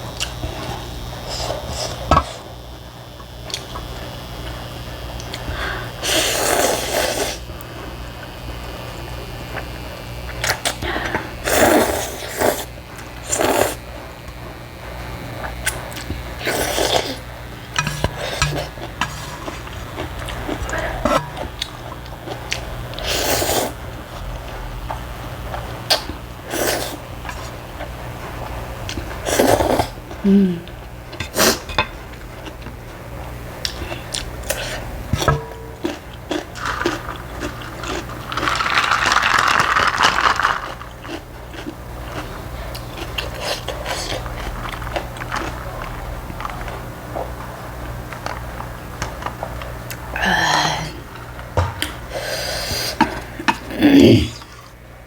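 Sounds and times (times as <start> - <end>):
steady low hum: 0.0 - 55.0
slurping noodles: 6.0 - 7.5, 11.4 - 13.9, 15.7 - 24.5, 25.6 - 27.6, 29.0 - 30.4, 31.2 - 31.7
chewing: 15.4 - 50.1.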